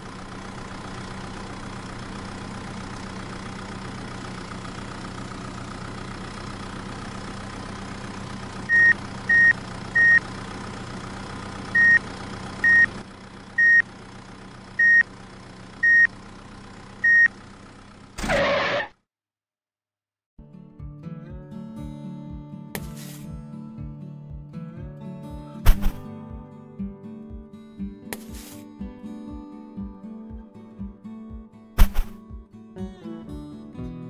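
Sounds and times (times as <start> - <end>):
tractor engine running: 0.0 - 18.9, 25.6 - 26.0, 28.2 - 28.6, 31.8 - 32.2
short high reversing beeps: 8.7 - 10.2, 11.8 - 12.0, 12.6 - 12.9, 13.6 - 13.8, 14.8 - 15.0, 15.8 - 16.1, 17.0 - 17.3.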